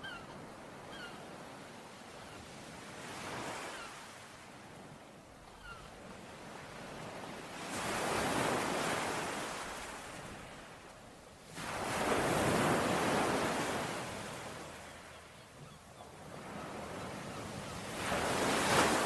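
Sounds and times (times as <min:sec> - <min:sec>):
ocean waves breaking: 0:05.9 - 0:19.0.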